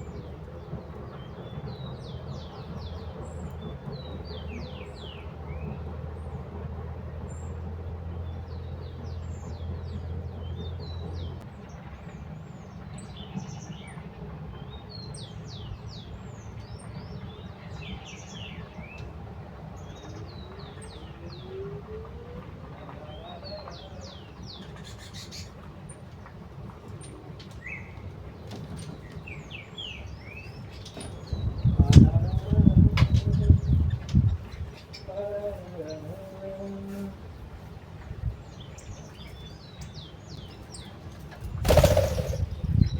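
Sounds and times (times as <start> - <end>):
small birds chirping: 23.0 - 26.2, 27.0 - 42.9.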